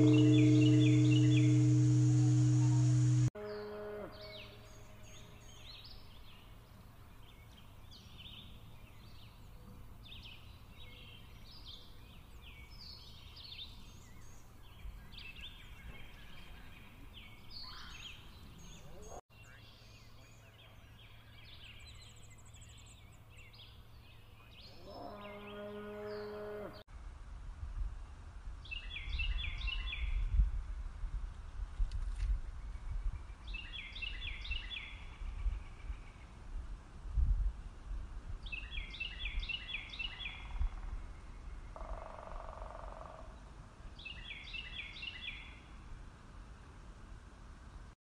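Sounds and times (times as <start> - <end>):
loud droning tone: 0.0 - 3.4.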